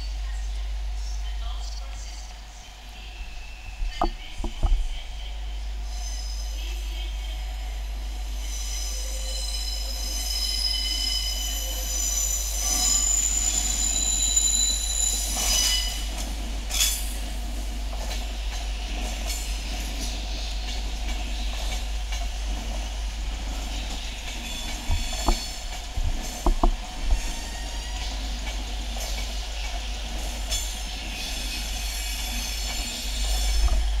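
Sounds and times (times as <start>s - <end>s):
deep train rumble: 0.0s - 34.0s
train wheel flanges squealing: 5.8s - 7.1s, 8.3s - 17.2s, 23.3s - 34.0s.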